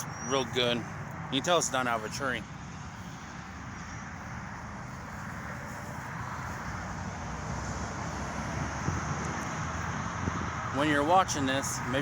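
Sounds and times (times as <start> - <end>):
highway traffic rushing: 0.0 - 12.0
wind buffeting microphone: 6.4 - 12.0.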